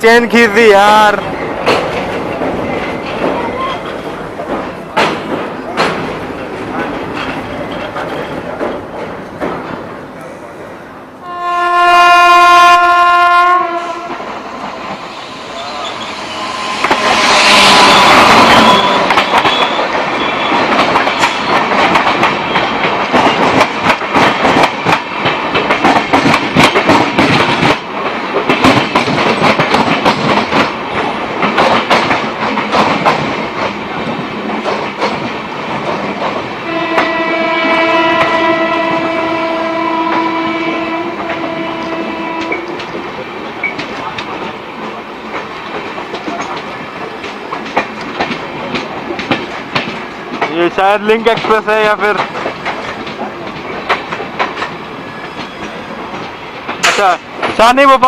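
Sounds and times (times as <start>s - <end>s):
train wheels clattering: 1.0s - 10.2s, 13.5s - 58.0s
locomotive horn: 11.2s - 14.3s, 36.6s - 42.8s.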